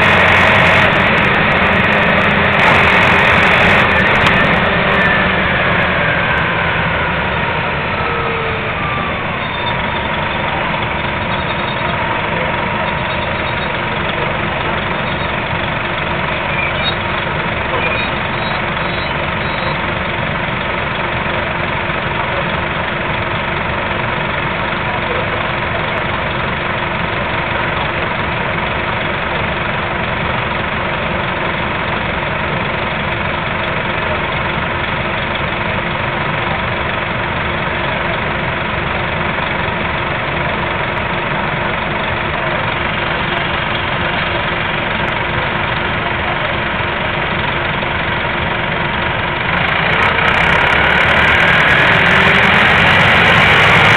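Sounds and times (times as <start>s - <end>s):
bus engine idling: 0.0s - 53.9s.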